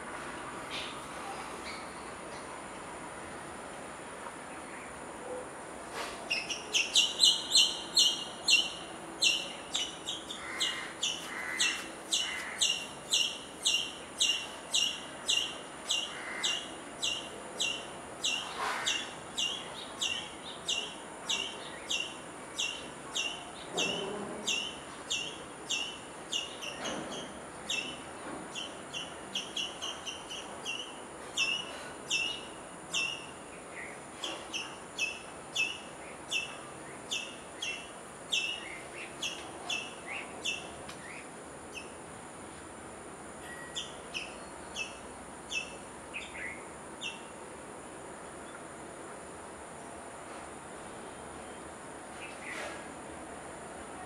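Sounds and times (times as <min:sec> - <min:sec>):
small bird chirping: 0:06.3 - 0:23.4.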